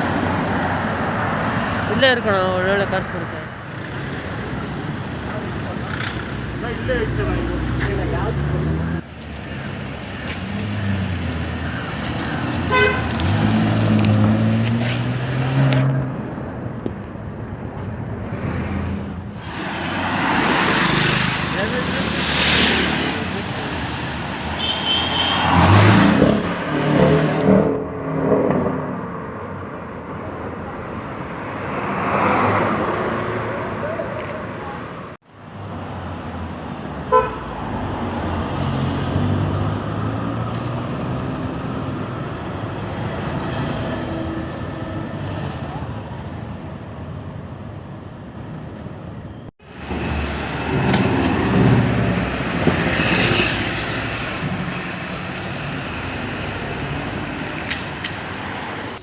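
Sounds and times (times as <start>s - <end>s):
vehicle approaching: 0.0s - 24.5s, 49.6s - 59.0s
vehicle hum: 0.0s - 31.4s, 32.3s - 59.0s
road traffic: 0.0s - 59.0s
car horn toot: 12.7s - 13.1s, 24.6s - 25.6s, 37.1s - 37.4s.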